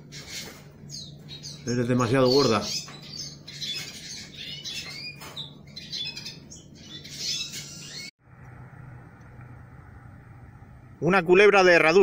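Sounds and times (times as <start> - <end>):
birds sharp chirps and squawks: 0.0 - 8.1
faint steady hum: 5.6 - 12.0.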